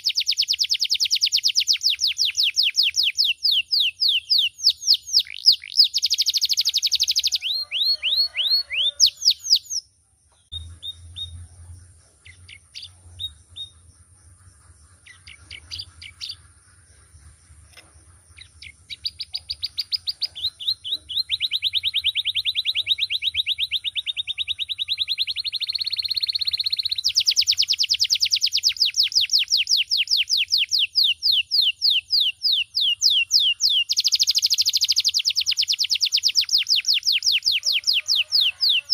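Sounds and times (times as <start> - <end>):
canary singing trills: 0.0 - 38.9
faint low hum: 10.0 - 20.9.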